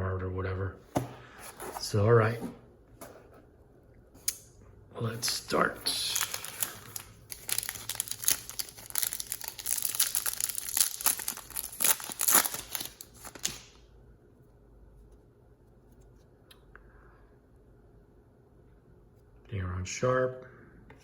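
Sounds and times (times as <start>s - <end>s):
foil wrapper tearing and crinkling: 5.9s - 13.8s.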